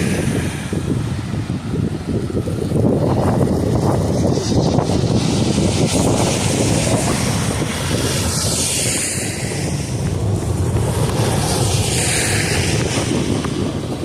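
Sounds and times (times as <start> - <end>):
wind rumbling on microphone: 0.0 - 14.0
tyres swishing on snowy road: 2.8 - 14.0.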